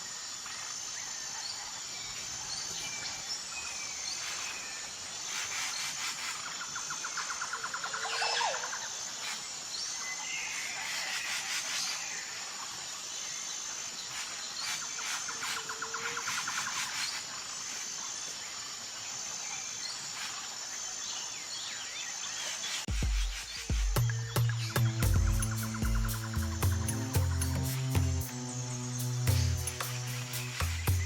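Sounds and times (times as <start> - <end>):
insects chorus: 0.0 - 31.0
rapid trills: 23.4 - 31.0.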